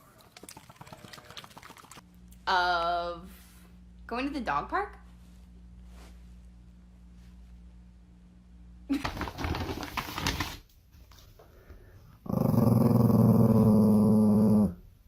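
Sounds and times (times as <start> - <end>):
dog growling: 12.2 - 14.9.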